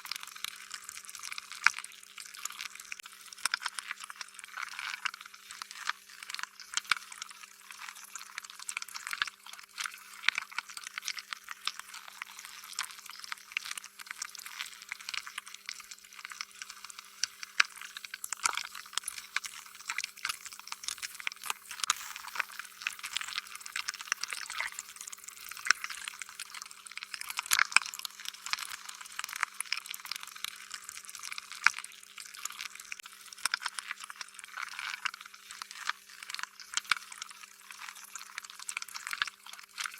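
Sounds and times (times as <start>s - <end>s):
slime squishing with wet pops: 8.4s - 30.0s.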